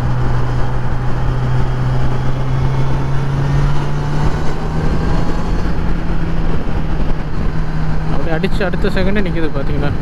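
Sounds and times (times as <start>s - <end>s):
motorcycle engine running: 0.0s - 10.0s
wind and road noise: 0.0s - 10.0s.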